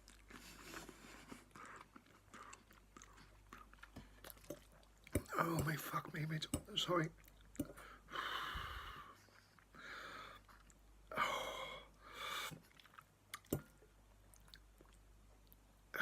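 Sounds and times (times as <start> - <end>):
man chewing noodles: 0.0 - 5.6, 7.1 - 8.1, 9.0 - 11.2, 11.8 - 15.8.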